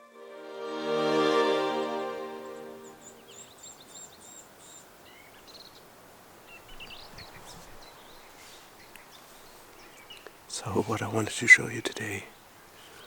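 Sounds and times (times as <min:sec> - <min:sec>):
music: 0:00.0 - 0:03.4
quiet forest background noise: 0:00.0 - 0:13.0
songbirds chirping: 0:00.0 - 0:13.0.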